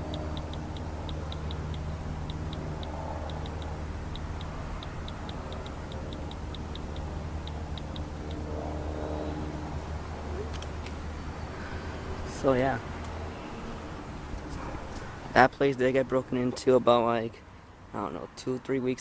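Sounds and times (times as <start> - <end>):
short high ticks: 0.0 - 8.4
steady low hum: 0.0 - 16.5.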